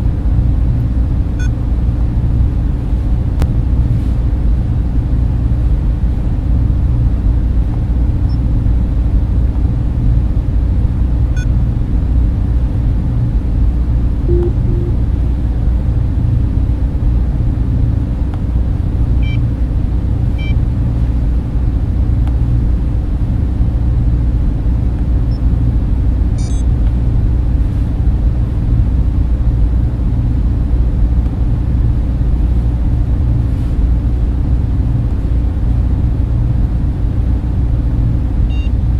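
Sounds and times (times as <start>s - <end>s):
server fans droning: 0.0s - 38.9s
faint high tones: 14.3s - 15.3s.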